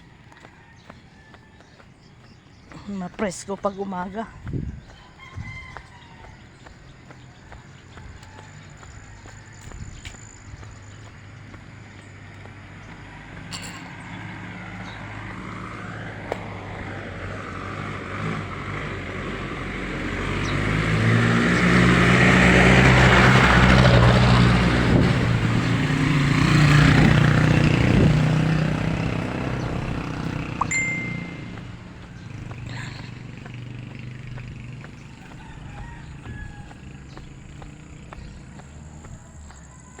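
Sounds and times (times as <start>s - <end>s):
motor vehicle passing: 0.0s - 40.0s
short high beep: 30.6s - 31.5s.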